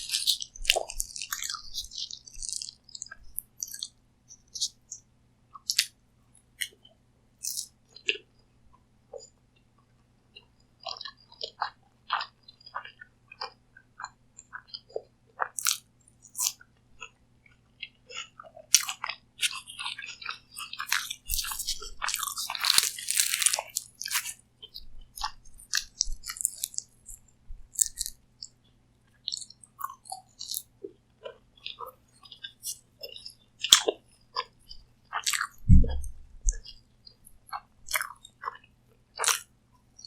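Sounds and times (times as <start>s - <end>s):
crunching bites of pastry: 0.0s - 4.8s, 5.6s - 5.9s, 7.4s - 8.2s, 15.4s - 16.6s, 18.1s - 24.4s, 25.2s - 28.5s, 29.3s - 34.5s, 35.1s - 36.8s, 37.5s - 38.6s, 39.2s - 39.5s
wet chewing clicks: 0.0s - 5.0s, 5.6s - 6.0s, 7.4s - 8.2s, 10.4s - 28.6s, 29.2s - 39.5s.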